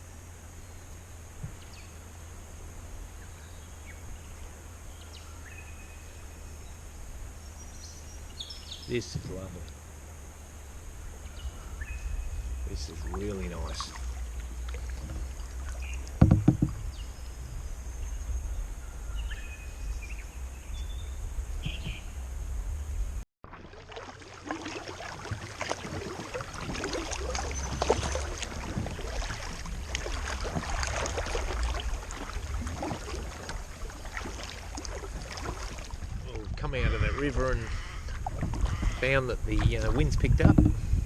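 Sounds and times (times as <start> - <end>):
wind: 0.0 - 41.0
paddle splashing in water: 11.2 - 17.2, 23.4 - 41.0
sharp knock: 16.2 - 16.8
water dripping: 23.5 - 36.4.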